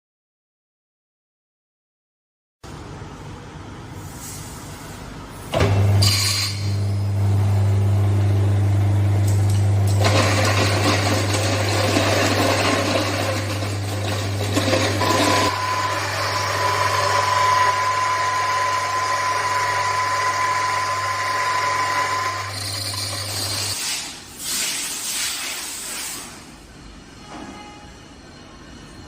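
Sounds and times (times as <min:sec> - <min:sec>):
grinding with high whine: 0:05.6 - 0:23.8
milling machine motor hum: 0:06.6 - 0:23.8.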